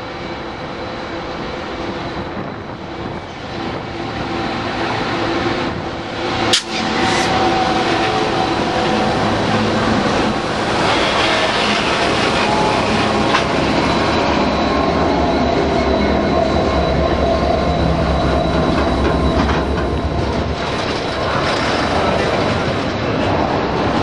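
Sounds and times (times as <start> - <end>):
locomotive engine rumble: 0.2 - 24.0
wheels clattering on rails: 6.4 - 24.0.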